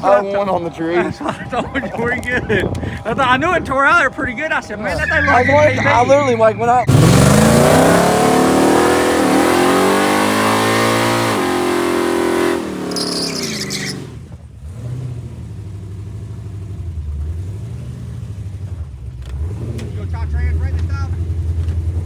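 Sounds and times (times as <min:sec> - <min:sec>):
low engine rumble: 0:00.0 - 0:10.2, 0:13.7 - 0:22.0
racing engine accelerating hard: 0:06.9 - 0:22.0.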